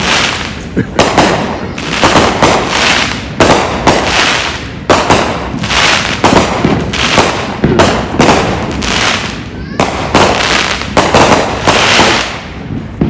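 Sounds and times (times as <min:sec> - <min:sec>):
fireworks bangs with hiss: 0:00.0 - 0:13.0.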